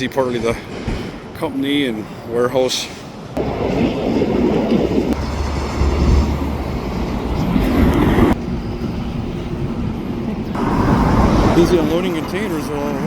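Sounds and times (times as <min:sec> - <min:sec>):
train rumbling: 0:03.1 - 0:13.0
steady low hum: 0:05.0 - 0:11.1.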